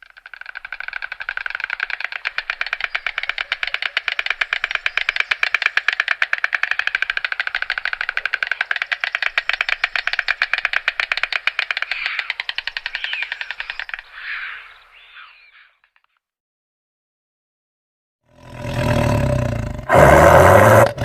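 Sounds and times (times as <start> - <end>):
stork clattering its bill: 0.0 - 16.1.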